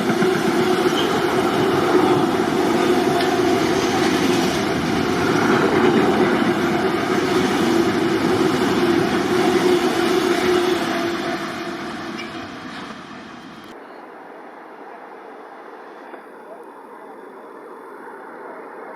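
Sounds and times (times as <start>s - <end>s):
freight train rumbling past: 0.0s - 13.8s.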